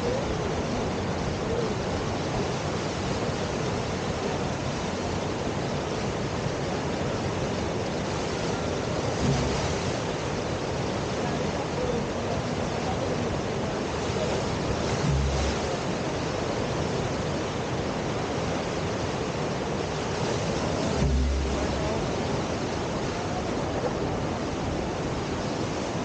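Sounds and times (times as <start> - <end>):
river rushing: 0.0 - 26.0
low thumps: 9.2 - 10.2, 14.9 - 16.2, 20.9 - 22.6.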